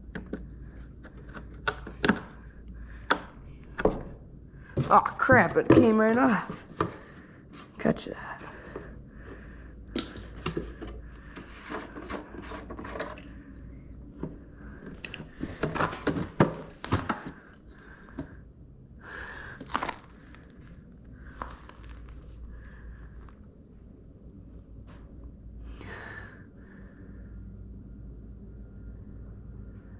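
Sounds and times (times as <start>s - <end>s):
hands handling fuel line: 8.7s - 18.4s.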